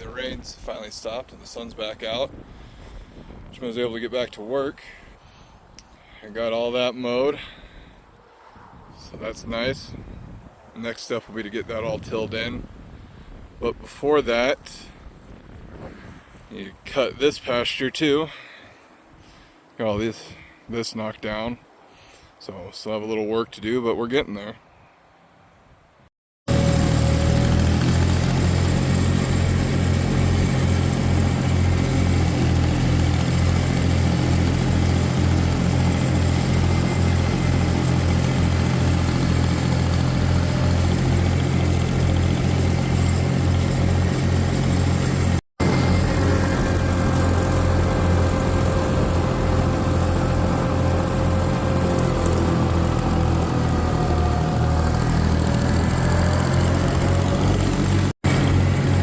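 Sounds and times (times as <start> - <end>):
tractor engine running: 26.5 - 59.0.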